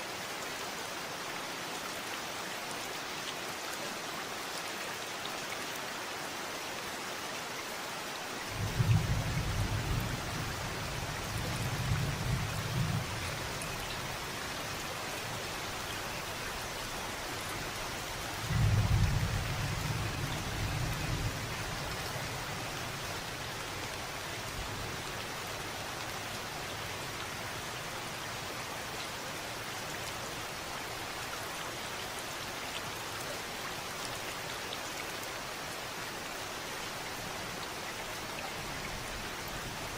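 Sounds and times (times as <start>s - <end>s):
steady rain falling: 0.0s - 39.9s
low rumbles of thunder: 8.5s - 13.8s, 18.4s - 23.1s.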